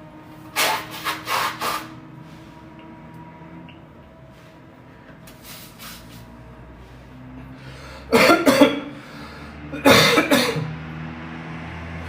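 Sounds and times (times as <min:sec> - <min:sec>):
man coughing: 0:08.1 - 0:09.0, 0:09.7 - 0:10.7.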